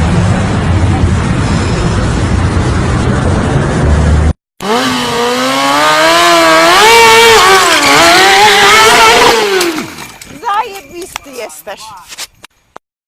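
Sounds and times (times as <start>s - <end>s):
wind noise: 0.0s - 4.3s
motorcycle engine revving: 0.0s - 10.2s
rumbling engine: 0.0s - 10.6s.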